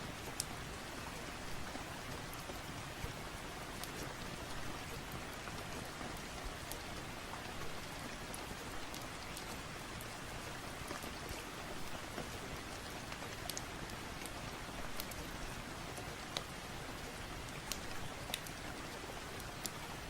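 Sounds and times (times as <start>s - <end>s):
steady rain: 0.0s - 20.0s
log fire crackling: 17.5s - 18.6s.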